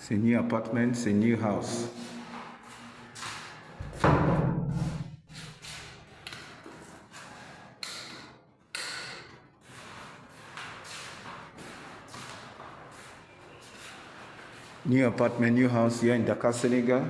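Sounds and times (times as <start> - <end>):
broom sweeping floor: 9.7 - 16.0.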